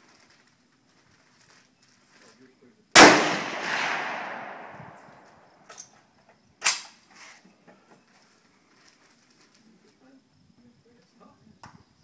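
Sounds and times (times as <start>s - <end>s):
rifle shot echoing: 3.0s - 5.6s.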